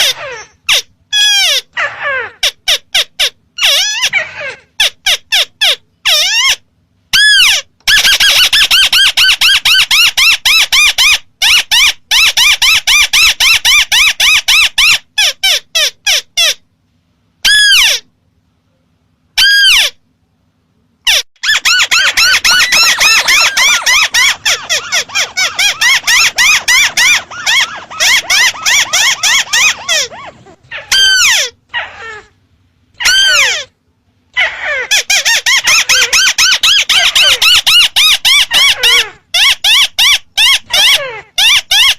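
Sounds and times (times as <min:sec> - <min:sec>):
crake calling: 0:21.1 - 0:32.3.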